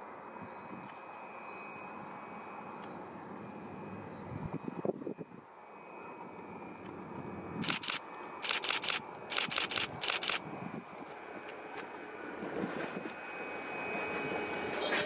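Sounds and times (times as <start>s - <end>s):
camera shutter clicking: 7.6s - 10.4s.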